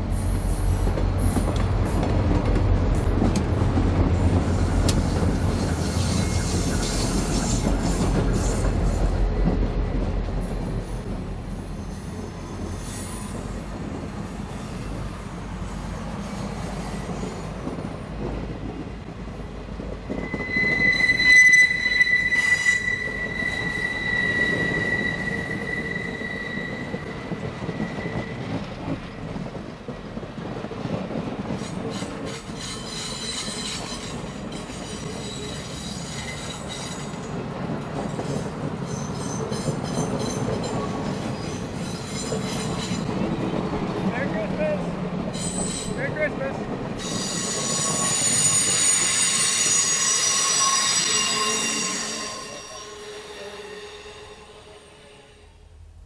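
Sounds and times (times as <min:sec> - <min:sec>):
train rumbling on rails: 0:00.0 - 0:56.0
high wheel squeal: 0:04.5 - 0:09.4, 0:20.0 - 0:28.9, 0:31.9 - 0:37.3, 0:38.0 - 0:43.3, 0:45.3 - 0:46.4, 0:47.0 - 0:55.5.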